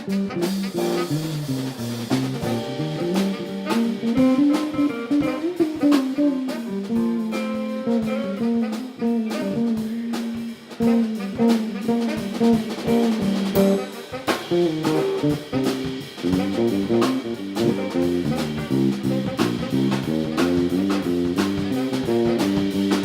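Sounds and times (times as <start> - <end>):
drum kit beat: 0.0 - 23.0
guitar: 0.0 - 23.0.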